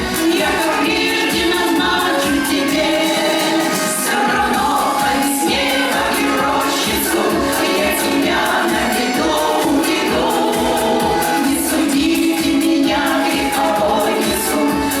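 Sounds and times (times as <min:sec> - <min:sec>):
choir singing with instruments: 0:00.0 - 0:15.0.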